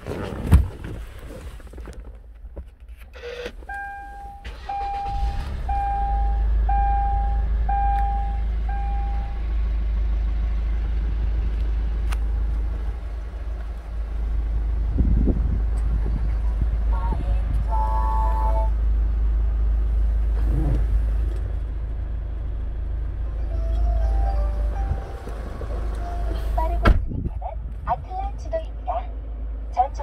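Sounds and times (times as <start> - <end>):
diesel engine starting and idling: 0.1 - 30.0
dashboard warning chime: 3.2 - 9.4, 23.3 - 26.8.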